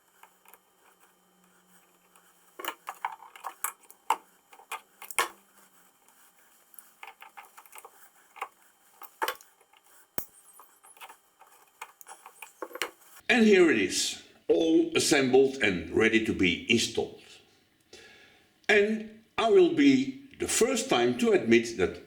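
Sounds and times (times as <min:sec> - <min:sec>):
metal parts clinking and knocking: 0:02.6 - 0:05.4, 0:06.8 - 0:13.2.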